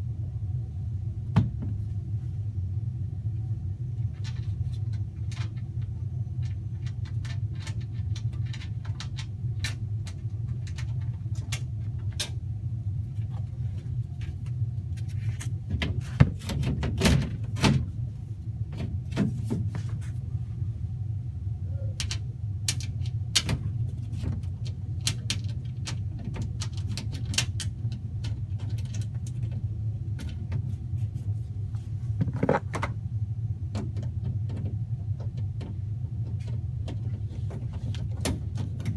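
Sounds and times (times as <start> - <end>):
hvac equipment humming: 0.0 - 38.9
clicks and rattles of handling: 4.0 - 12.4, 13.0 - 17.9, 22.0 - 33.0, 33.7 - 38.9
knocks on sheet-metal panels: 15.7 - 17.9.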